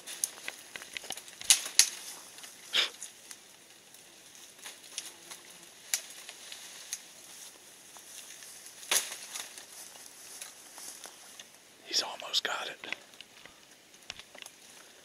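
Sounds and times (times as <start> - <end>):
twigs snapping in brush: 0.0 - 3.5, 4.4 - 7.1, 7.9 - 11.6, 12.9 - 14.9.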